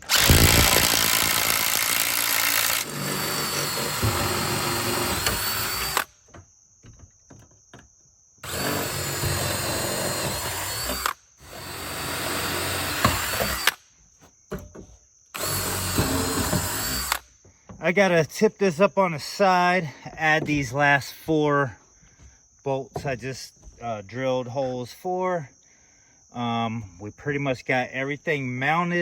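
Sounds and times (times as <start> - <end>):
power drill boring holes: 0.0 - 6.1, 8.4 - 13.8, 15.4 - 17.2.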